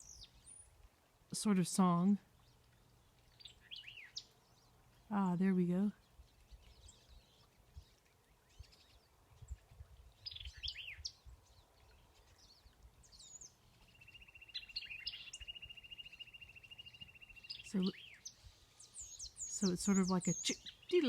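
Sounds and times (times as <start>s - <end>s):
bird singing chattery phrases: 0.0s - 0.8s, 1.4s - 21.0s
other bird calls: 14.1s - 21.0s.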